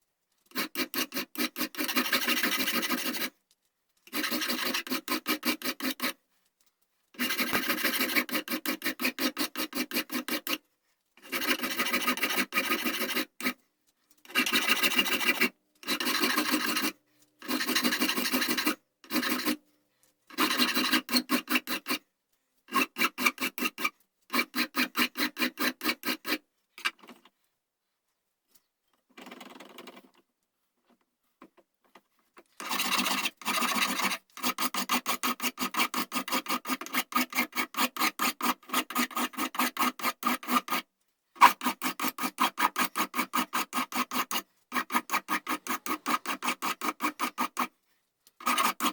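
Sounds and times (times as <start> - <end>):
rasp scraping wood: 0.5 - 3.3, 4.1 - 6.2, 7.2 - 10.6, 11.2 - 13.6, 14.3 - 19.6, 20.3 - 22.0, 22.7 - 26.4, 32.6 - 40.8, 41.4 - 47.7, 48.4 - 48.9.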